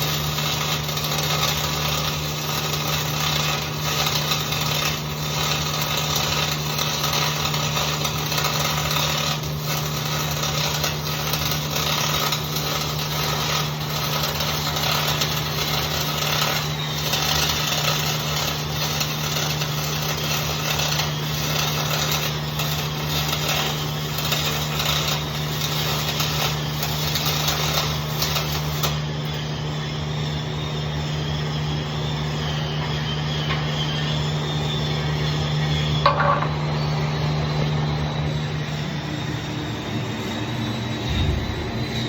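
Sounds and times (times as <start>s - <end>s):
welding arc crackling: 0.0s - 29.5s, 41.0s - 42.0s
electrical hum: 32.2s - 42.0s.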